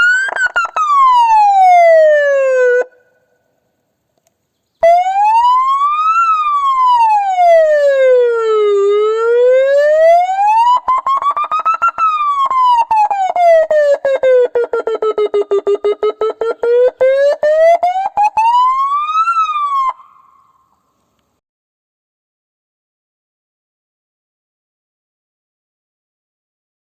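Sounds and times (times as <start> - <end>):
electronic siren wailing: 0.0 - 3.0, 4.8 - 20.4.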